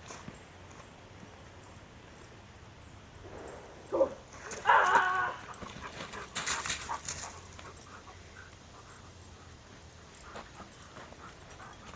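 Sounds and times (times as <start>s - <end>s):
scuffling: 4.3s - 11.9s
dog panting: 5.6s - 11.9s.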